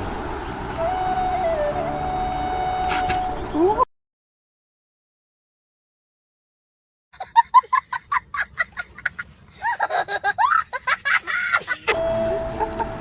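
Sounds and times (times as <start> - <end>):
person laughing: 7.2 - 13.0.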